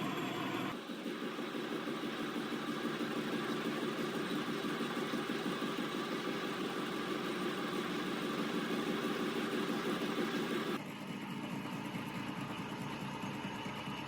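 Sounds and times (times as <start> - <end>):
machine humming: 0.0 - 10.8.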